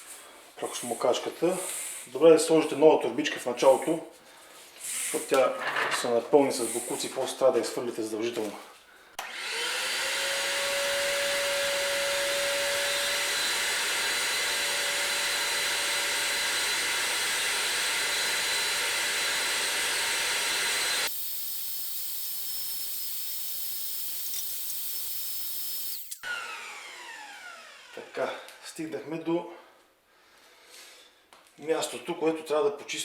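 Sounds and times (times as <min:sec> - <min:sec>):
vacuum cleaner running: 0:09.2 - 0:22.6, 0:24.9 - 0:28.2.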